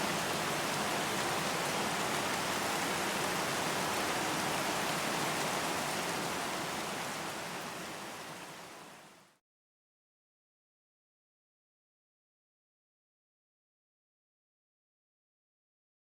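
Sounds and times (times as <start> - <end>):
steady rain: 0.0 - 9.4.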